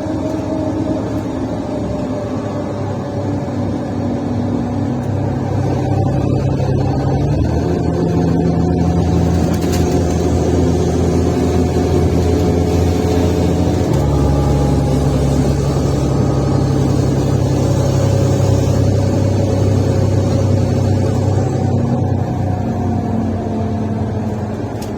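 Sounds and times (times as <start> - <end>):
bus diesel engine running: 0.0 - 24.9.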